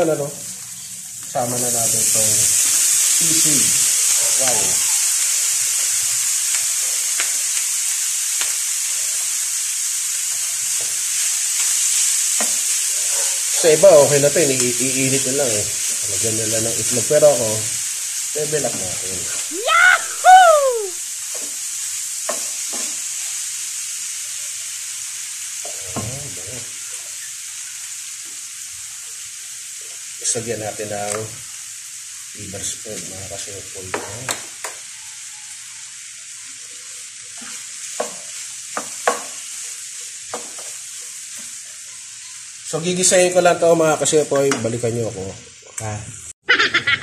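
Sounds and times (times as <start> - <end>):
meat sizzling in a pan: 0.0 - 47.0
spatula scraping a pan: 10.3 - 13.7, 37.3 - 41.5.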